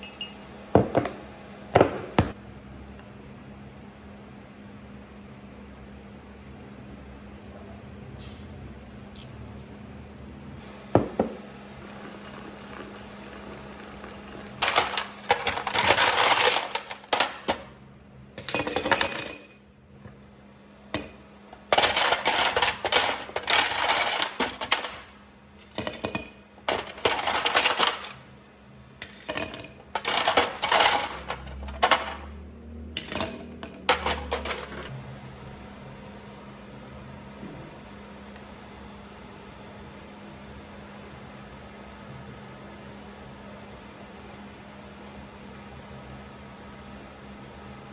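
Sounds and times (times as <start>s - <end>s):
small hard objects clinking: 11.8s - 17.3s, 21.0s - 28.2s, 29.0s - 32.2s, 33.0s - 34.9s.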